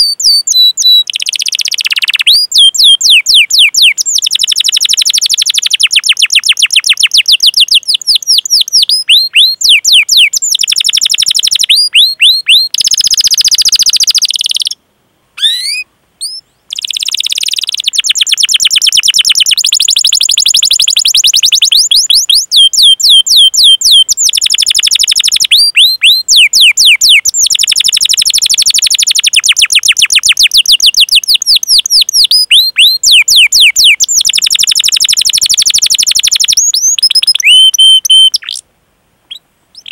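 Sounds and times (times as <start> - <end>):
canary singing trills: 0.0 - 14.8, 15.4 - 38.6, 39.3 - 39.9.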